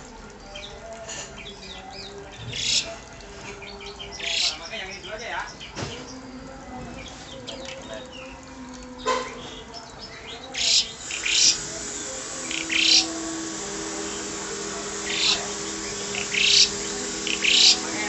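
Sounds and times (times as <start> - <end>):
starling harsh rising calls: 10.5 - 18.0.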